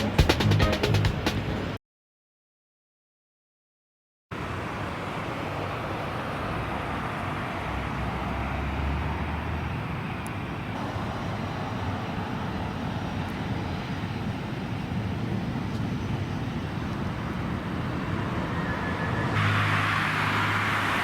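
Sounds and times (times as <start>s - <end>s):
jet engines roaring: 4.4s - 21.0s.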